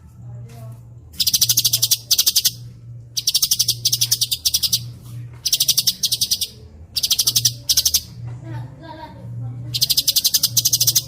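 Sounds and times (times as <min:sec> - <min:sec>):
low steady hum: 0:00.0 - 0:11.0
songbird rapid trills: 0:01.2 - 0:02.6, 0:03.2 - 0:08.1, 0:09.7 - 0:11.0.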